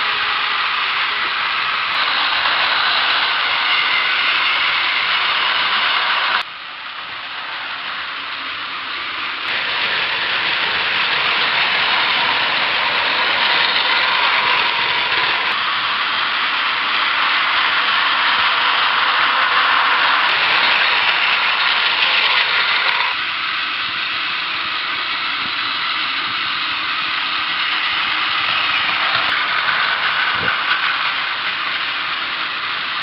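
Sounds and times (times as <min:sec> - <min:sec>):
toy train motor whirring: 0:00.0 - 0:33.0.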